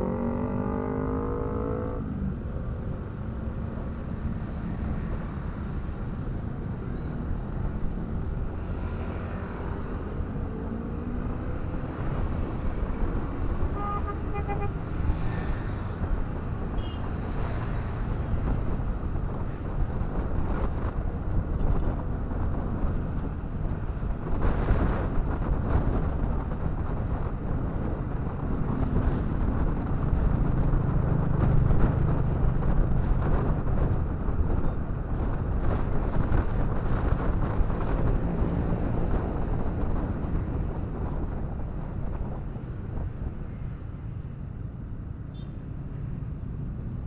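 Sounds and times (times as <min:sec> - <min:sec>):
motorcycle engine and road rumble: 0:00.0 - 0:47.0
vehicle horn beeps: 0:13.8 - 0:14.7.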